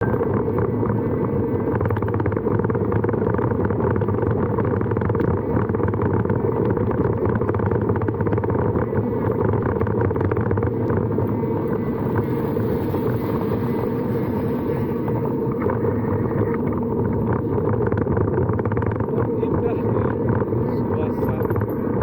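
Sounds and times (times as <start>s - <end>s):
vehicle engine and road noise: 0.0s - 22.0s
wind buffeting microphone: 0.0s - 22.0s.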